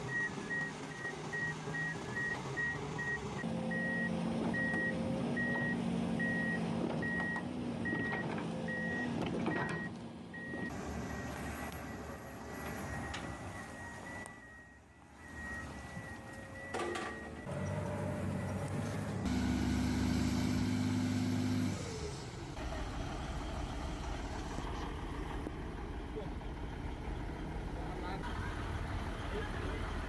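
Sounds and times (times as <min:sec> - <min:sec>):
reversing alarm beeping: 0:00.1 - 0:20.2
machine engine running: 0:17.4 - 0:26.8.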